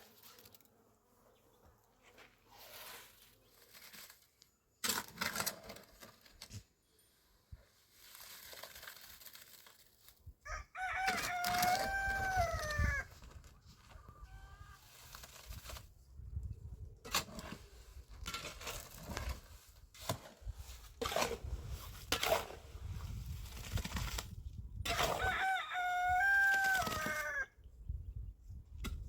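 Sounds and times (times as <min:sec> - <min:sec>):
rooster crowing: 0:10.5 - 0:13.1, 0:25.2 - 0:27.6.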